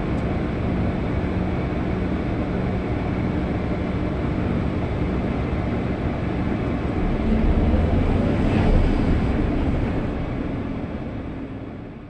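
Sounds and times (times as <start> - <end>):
excavator diesel engine running: 4.7 - 12.0.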